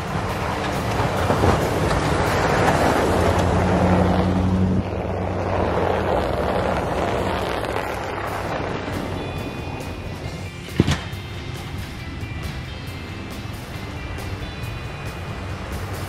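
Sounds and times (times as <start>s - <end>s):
tyre noise on snow: 0.0s - 11.1s
truck engine hum: 0.0s - 16.0s.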